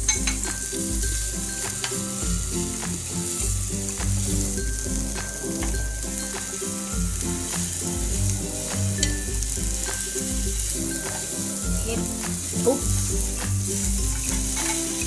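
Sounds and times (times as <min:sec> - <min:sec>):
meat sizzling on grill pan: 0:00.0 - 0:15.0
repeating musical bass line: 0:00.0 - 0:15.0.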